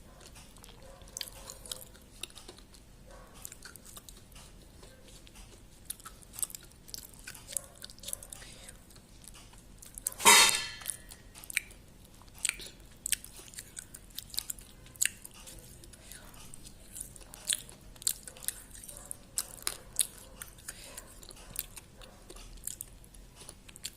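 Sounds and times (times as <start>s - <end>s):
chewing and eating: 0.0s - 10.2s, 10.8s - 23.9s
loud short noise: 10.2s - 10.9s.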